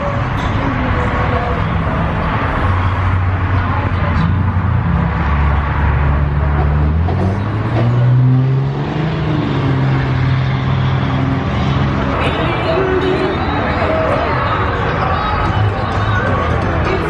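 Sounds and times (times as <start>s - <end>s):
car engine revving: 1.0s - 12.2s.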